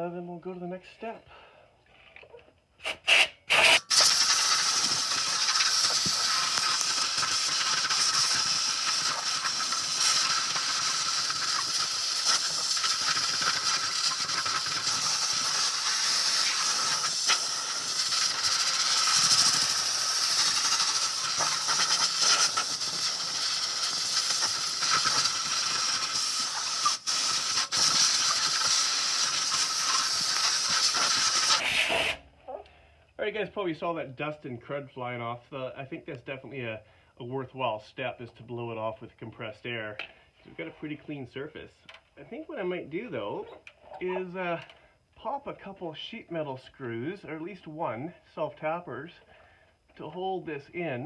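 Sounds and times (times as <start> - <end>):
compressed air hissing: 2.8 - 32.2.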